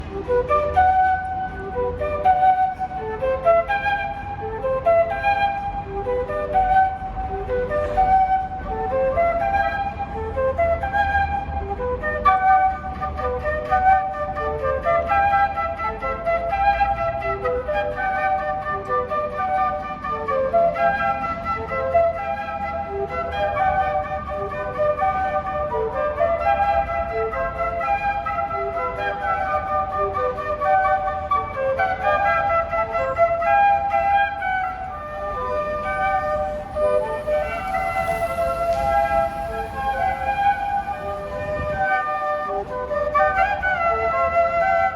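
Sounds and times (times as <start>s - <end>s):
flute melody: 0.0s - 44.9s.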